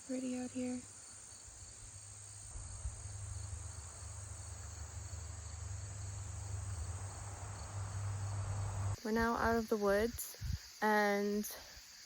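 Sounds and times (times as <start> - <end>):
insects chorus: 0.0 - 12.0
low rumble: 2.6 - 9.0.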